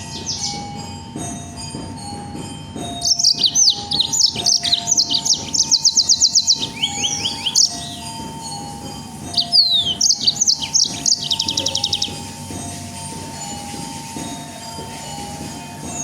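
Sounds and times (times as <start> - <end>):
songbird singing rapid trills: 3.0 - 8.1, 9.3 - 12.3.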